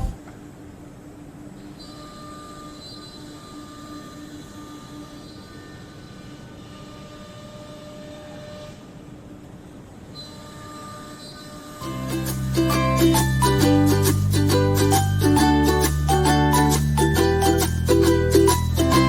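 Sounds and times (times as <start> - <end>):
whining tones: 0.0 - 0.2.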